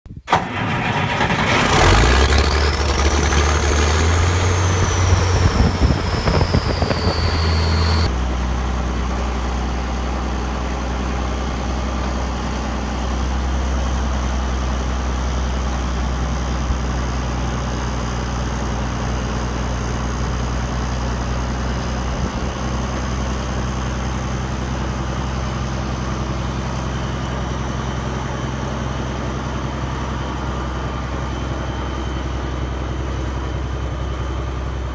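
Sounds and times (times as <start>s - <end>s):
diesel tractor engine starting: 0.1s - 34.9s
turbo whine: 2.2s - 8.4s.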